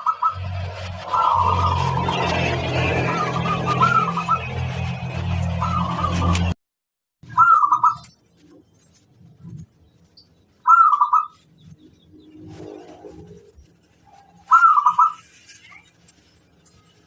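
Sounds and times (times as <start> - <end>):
low background drone: 0.0 - 6.6
dove cooing: 1.1 - 2.0, 14.2 - 15.2.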